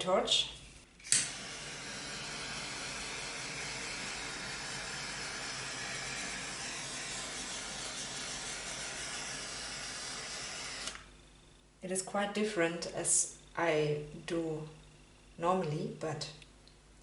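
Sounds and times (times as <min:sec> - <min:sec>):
butane torch hissing: 0:01.3 - 0:11.1.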